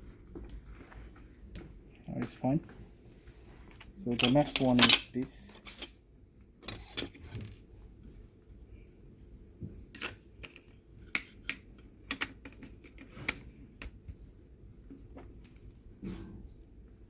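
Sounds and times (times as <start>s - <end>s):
small parts clicking and tapping: 9.9s - 14.2s.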